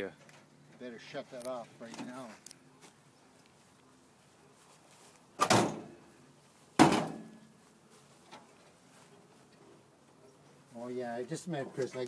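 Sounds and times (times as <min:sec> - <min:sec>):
loud bangs ringing out: 0:05.4 - 0:05.9, 0:06.8 - 0:07.3.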